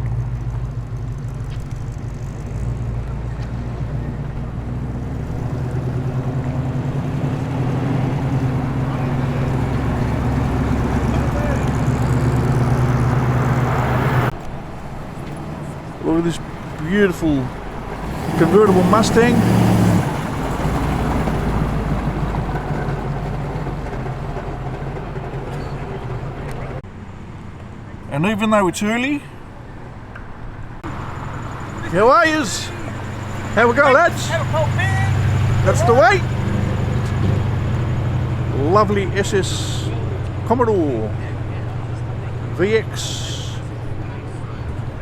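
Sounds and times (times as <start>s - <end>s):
engine note rising: 0.0s - 26.8s, 30.8s - 45.0s
car engines rumbling: 0.0s - 45.0s.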